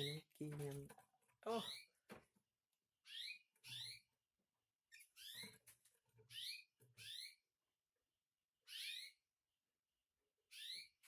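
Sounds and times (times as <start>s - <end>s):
canaries chirping: 1.5s - 2.1s, 3.0s - 4.2s, 4.9s - 7.6s, 8.6s - 9.3s, 10.4s - 11.0s.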